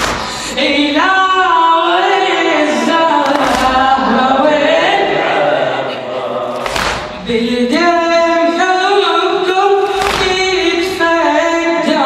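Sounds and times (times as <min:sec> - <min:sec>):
voices singing a slow lament: 0:00.0 - 0:12.0.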